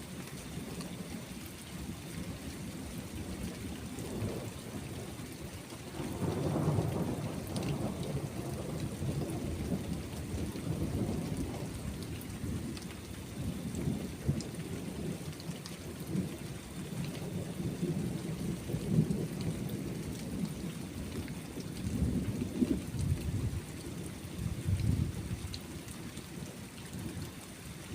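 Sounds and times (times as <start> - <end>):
steady rain: 0.0 - 27.9
raindrop ticks: 0.2 - 1.0, 5.6 - 17.8.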